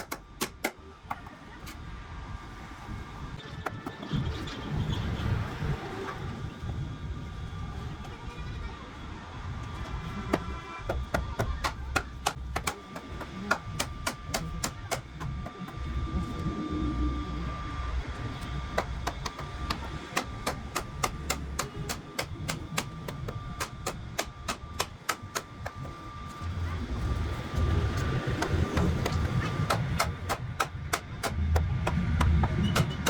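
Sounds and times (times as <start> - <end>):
hammer striking wood: 0.0 - 1.3, 10.3 - 15.8, 18.7 - 26.0, 28.0 - 33.0
faint steady hum: 0.0 - 33.0.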